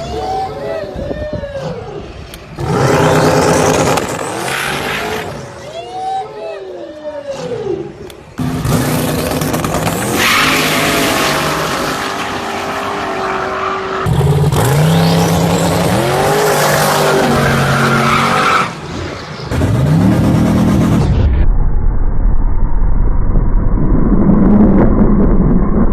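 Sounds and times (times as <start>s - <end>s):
car engine revving hard: 2.6s - 5.3s.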